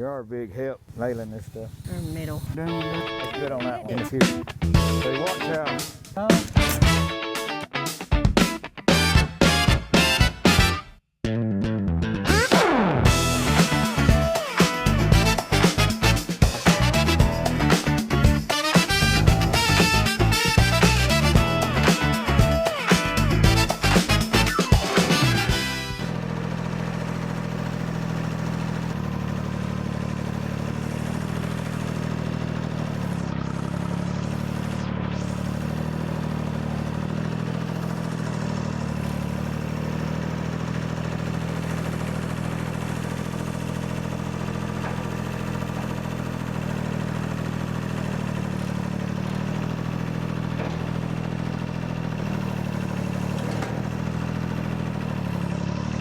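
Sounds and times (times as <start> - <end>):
small gasoline engine running: 0.8 - 7.4, 12.3 - 56.0.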